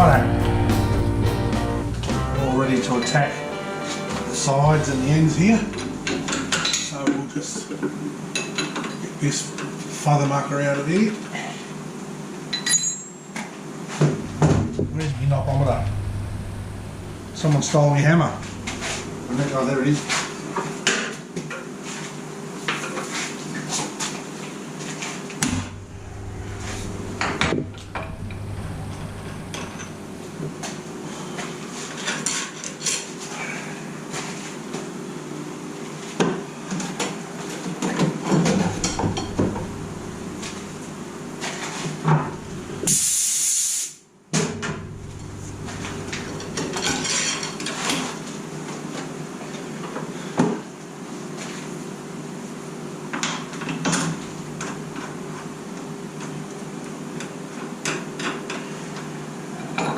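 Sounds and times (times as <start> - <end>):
low machine hum: 0.0 - 7.2, 14.0 - 19.8, 25.4 - 32.1, 38.4 - 42.9, 44.4 - 48.3, 53.9 - 55.5
short hiss: 42.8 - 44.0.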